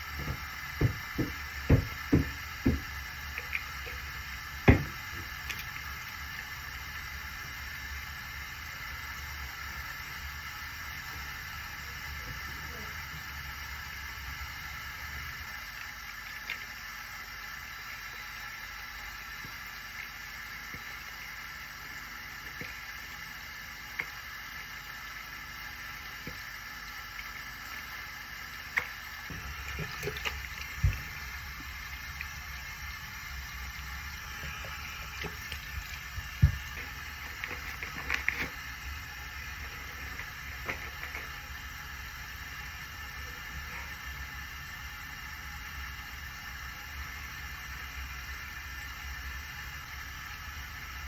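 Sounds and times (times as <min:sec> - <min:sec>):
steady hiss: 0:00.0 - 0:51.0
water running at a sink: 0:00.0 - 0:51.0
small items clicking and knocking: 0:00.2 - 0:06.2, 0:34.4 - 0:38.7.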